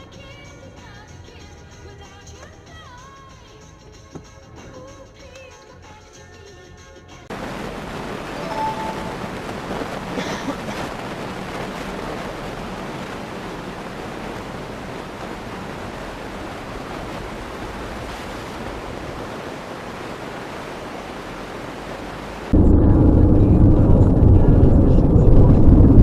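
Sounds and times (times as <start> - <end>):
steady rushing noise: 7.3 - 26.0
short faint tone: 8.4 - 9.4.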